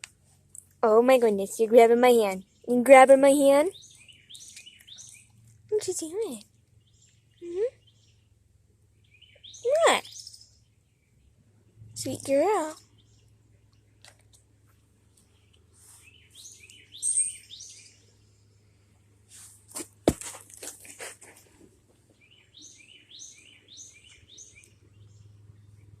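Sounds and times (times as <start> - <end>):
bird chirping: 2.2 - 19.0, 22.0 - 26.0.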